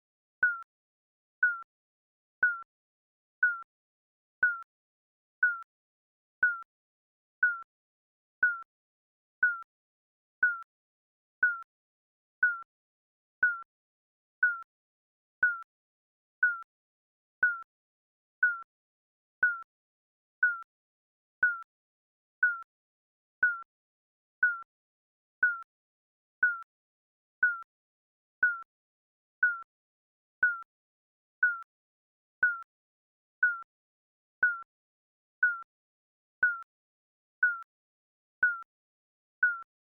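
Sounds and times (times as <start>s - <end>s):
timer beeping: 0.4s - 0.6s, 1.4s - 1.6s, 2.4s - 2.7s, 3.4s - 3.7s, 4.4s - 4.6s, 5.4s - 5.6s, 6.4s - 6.6s, 7.4s - 7.7s, 8.4s - 8.7s, 9.4s - 9.7s, 10.4s - 10.6s, 11.4s - 11.7s, 12.4s - 12.7s, 13.4s - 13.6s, 14.4s - 14.6s, 15.4s - 15.6s, 16.4s - 16.6s, 17.4s - 17.6s, 18.4s - 18.6s, 19.4s - 19.6s, 20.4s - 20.6s, 21.4s - 21.6s, 22.4s - 22.6s, 23.4s - 23.6s, 24.4s - 24.7s, 25.4s - 25.6s, 26.4s - 26.6s, 27.4s - 27.6s, 28.4s - 28.6s, 29.4s - 29.7s, 30.4s - 30.7s, 31.4s - 31.6s, 32.4s - 32.7s, 33.4s - 33.7s, 34.4s - 34.7s, 35.4s - 35.7s, 36.4s - 36.7s, 37.4s - 37.7s, 38.4s - 38.6s, 39.4s - 39.7s.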